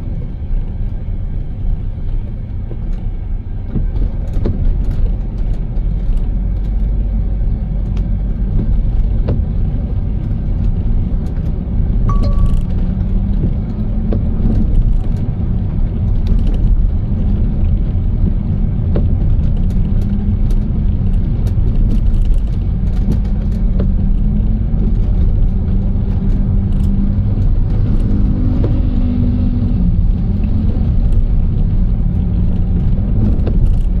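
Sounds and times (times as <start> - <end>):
car road and engine rumble: 0.0 - 34.0
short beep: 12.1 - 12.7.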